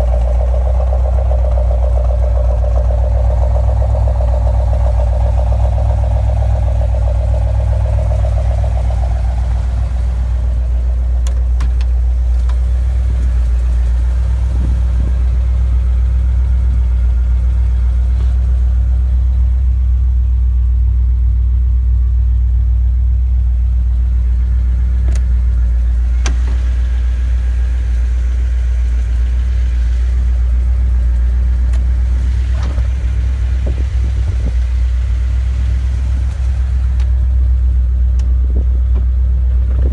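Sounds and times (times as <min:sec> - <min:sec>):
car engine rumbling: 0:00.0 - 0:39.9.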